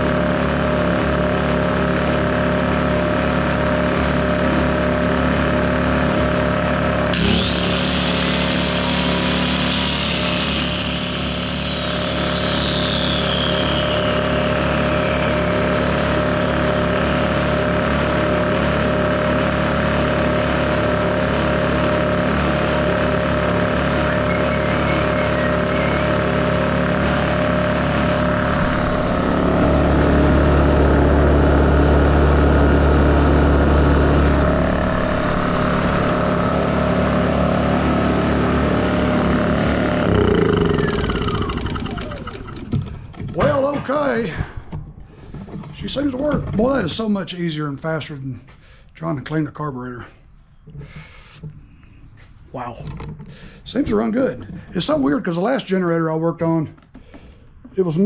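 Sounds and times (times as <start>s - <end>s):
generator engine running: 0.0s - 48.8s
high whine: 7.0s - 42.8s.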